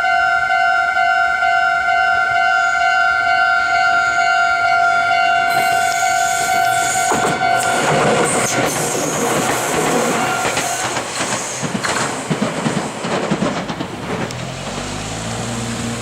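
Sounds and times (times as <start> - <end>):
crossing warning bell ringing: 0.0 - 8.6
train wheels clacking over rail joints: 5.5 - 15.3.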